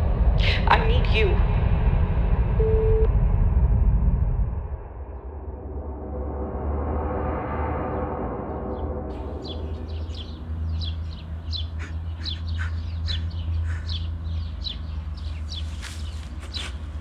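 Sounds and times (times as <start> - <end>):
low steady hum: 0.0 - 4.6
small birds chirping: 9.1 - 17.0.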